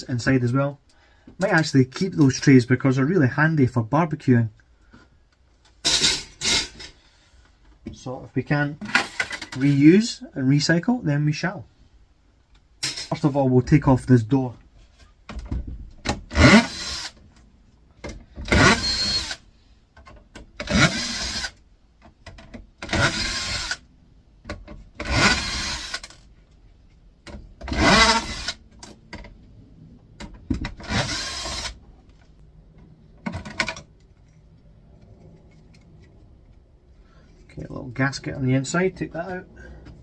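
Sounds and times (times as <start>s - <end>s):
cordless drill spinning: 16.3s - 17.2s, 18.5s - 19.4s, 20.6s - 21.6s, 22.9s - 23.8s, 25.0s - 26.2s, 27.7s - 28.6s, 30.8s - 31.8s.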